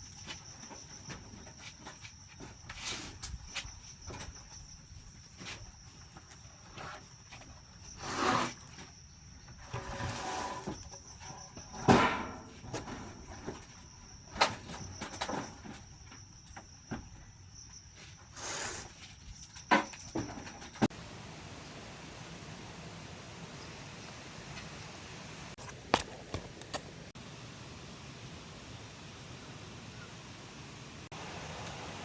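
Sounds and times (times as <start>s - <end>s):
knocks and scrapes: 9.6s - 13.8s.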